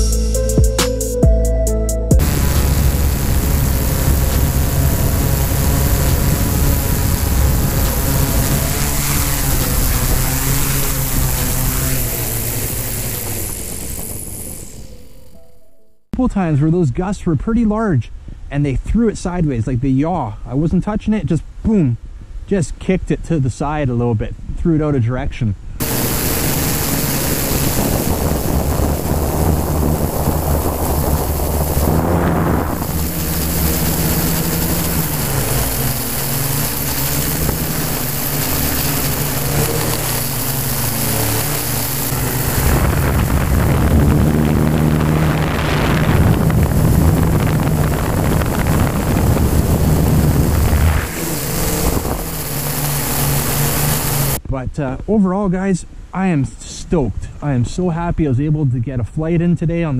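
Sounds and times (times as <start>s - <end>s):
drone propellers humming: 0.0s - 16.1s, 25.8s - 54.4s
wind on microphone: 2.2s - 14.6s, 25.6s - 54.5s.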